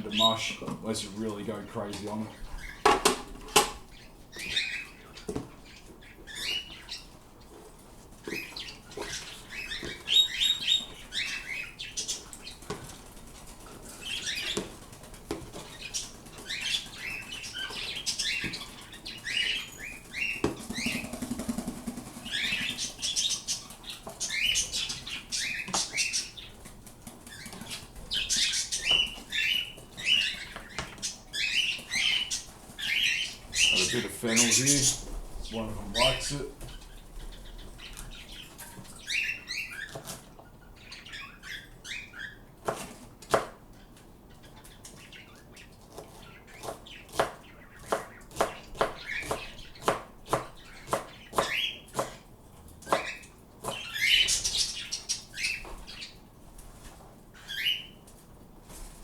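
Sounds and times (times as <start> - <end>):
pet birds chirping: 0.0 - 56.4, 57.0 - 58.2
sharp knocks and clicks: 2.8 - 3.8.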